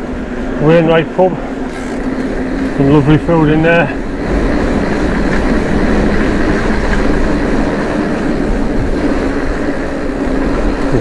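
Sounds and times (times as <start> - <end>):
bike rattling: 0.0 - 11.0
bike tyre noise: 0.0 - 11.0
wind rush on microphone: 0.0 - 11.0.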